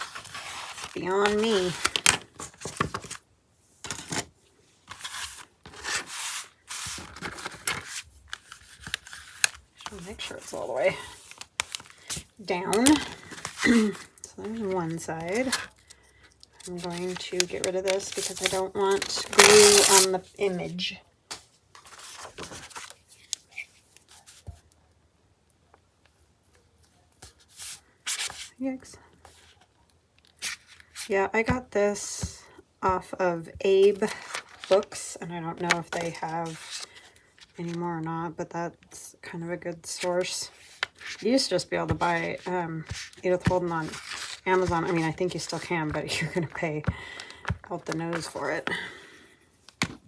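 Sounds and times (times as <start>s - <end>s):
paper rustling: 0.0s - 3.2s, 3.8s - 20.3s, 21.3s - 24.6s, 33.7s - 37.8s, 39.9s - 50.0s.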